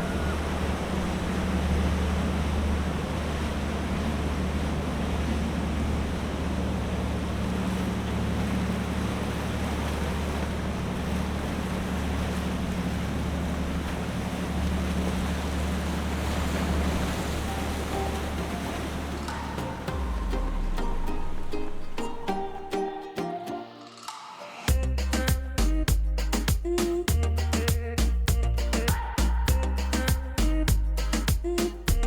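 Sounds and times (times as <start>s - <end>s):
boat engine droning: 0.0s - 23.1s
water noise: 0.0s - 32.0s.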